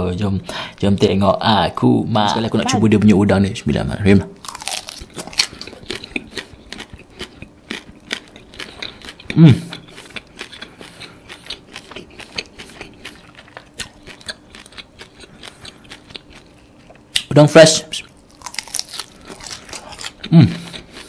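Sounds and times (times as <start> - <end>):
crisp chewing crackles: 4.4 - 17.3, 17.9 - 21.0
person humming: 9.3 - 9.8, 20.3 - 20.8.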